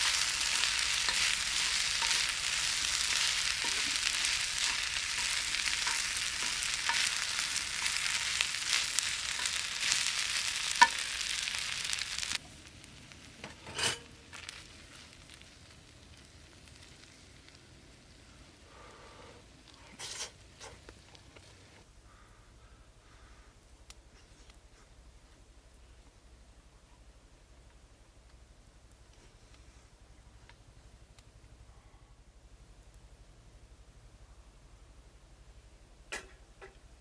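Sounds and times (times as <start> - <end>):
food sizzling in a pan: 0.0 - 18.6.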